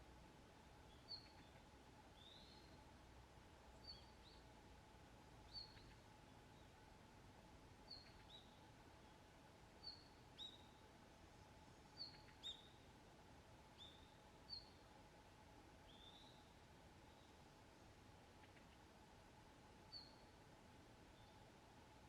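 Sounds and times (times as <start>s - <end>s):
small bird high calls: 7.9s - 8.6s, 12.0s - 12.8s.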